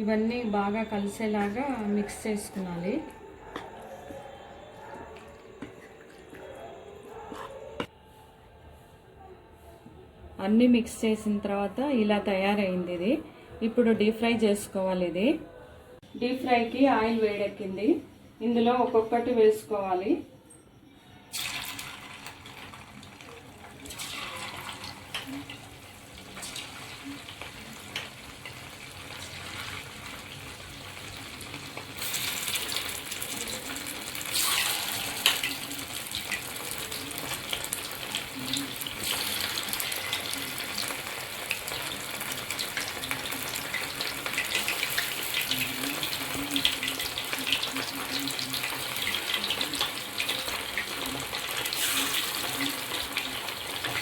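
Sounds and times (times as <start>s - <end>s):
chicken deep-frying in oil: 21.3s - 54.0s.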